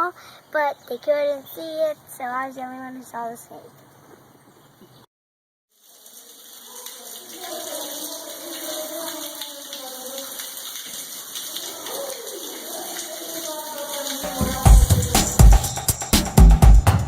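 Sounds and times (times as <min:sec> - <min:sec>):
floodwater rushing: 0:05.8 - 0:15.8
faint voices: 0:06.8 - 0:10.6, 0:11.2 - 0:15.4.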